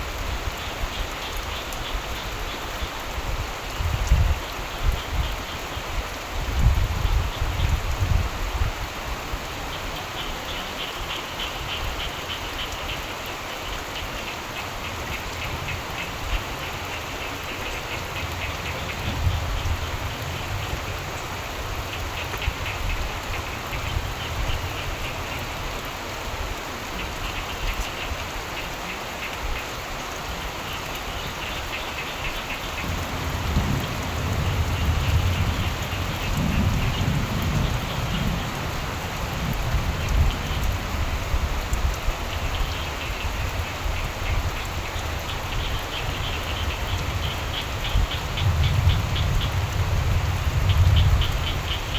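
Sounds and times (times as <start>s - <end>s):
steady rain: 0.0s - 51.9s
frogs calling in trills: 9.6s - 25.8s, 26.9s - 41.4s, 42.0s - 51.9s
low thunder rumbles: 18.0s - 24.8s, 32.7s - 42.8s, 45.6s - 51.9s.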